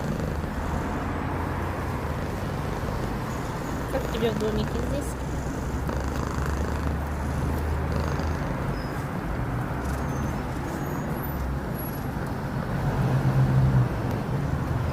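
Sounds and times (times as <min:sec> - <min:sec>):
cat purring: 0:00.0 - 0:01.2, 0:01.9 - 0:08.8.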